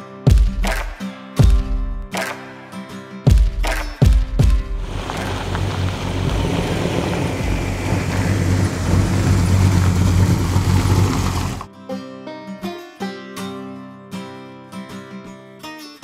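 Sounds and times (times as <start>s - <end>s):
outdoor noise: 4.4s - 11.7s
car engine running: 4.8s - 11.7s.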